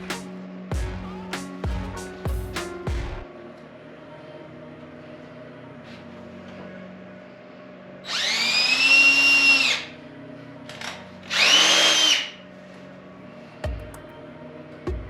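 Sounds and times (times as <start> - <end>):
power drill whining: 8.1 - 9.9, 11.3 - 12.4.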